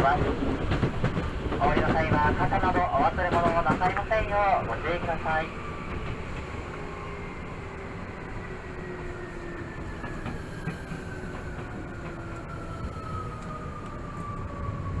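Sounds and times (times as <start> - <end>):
wheel and rail rumble: 0.0 - 8.4.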